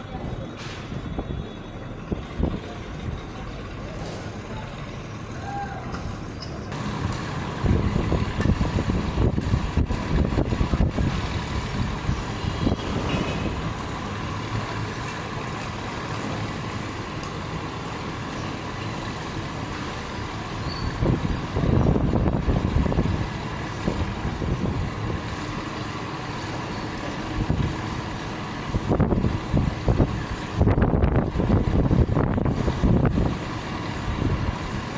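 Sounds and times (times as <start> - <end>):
truck engine rumbling: 0.0 - 34.9.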